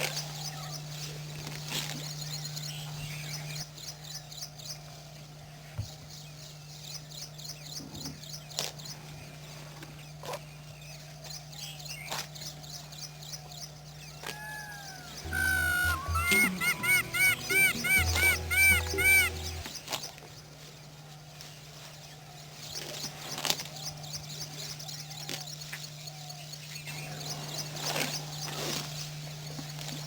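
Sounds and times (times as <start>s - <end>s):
bird chirping rapidly: 14.4s - 19.6s.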